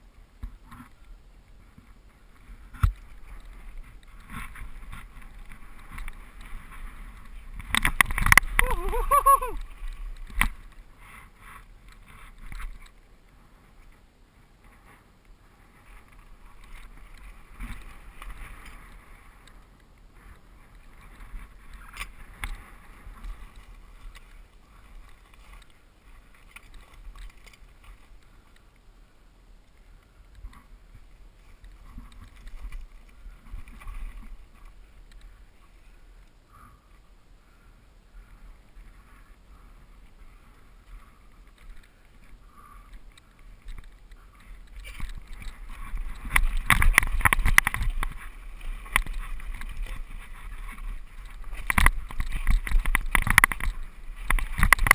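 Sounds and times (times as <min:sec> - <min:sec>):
bike clicks and rattles: 0:01.8 - 0:13.1, 0:15.8 - 0:28.8, 0:31.4 - 0:35.4, 0:40.8 - 0:54.9
wind rumble on microphone: 0:38.0 - 0:54.9.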